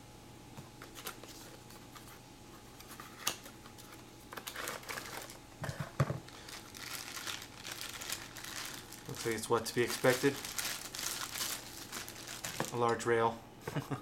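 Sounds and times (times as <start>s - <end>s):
plastic packaging crinkling: 4.3s - 5.5s, 6.2s - 13.0s.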